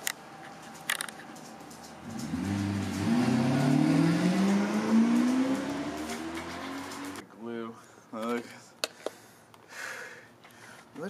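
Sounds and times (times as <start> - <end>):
car engine accelerating: 1.5 - 7.2.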